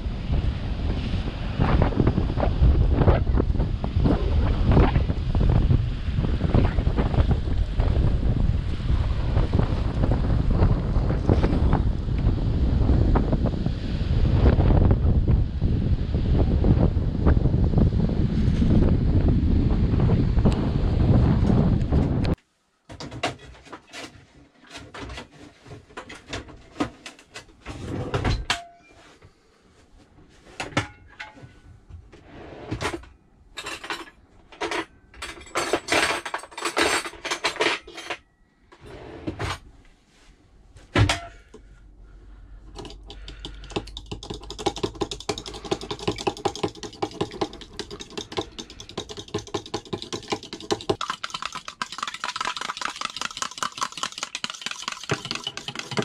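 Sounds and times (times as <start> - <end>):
utensils and cookware clattering: 33.6 - 38.3, 53.5 - 56.0
fork whisking eggs in bowl: 42.7 - 56.0.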